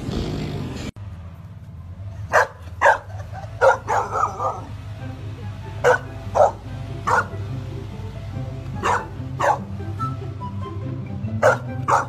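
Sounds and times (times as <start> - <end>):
dog barking: 2.3 - 4.7, 5.8 - 7.3, 8.8 - 9.7, 11.4 - 12.0
background music: 3.5 - 12.0.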